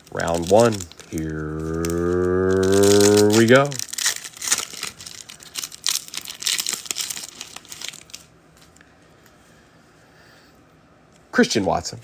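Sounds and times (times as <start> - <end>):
wrapper tearing and crinkling: 0.0 - 8.3.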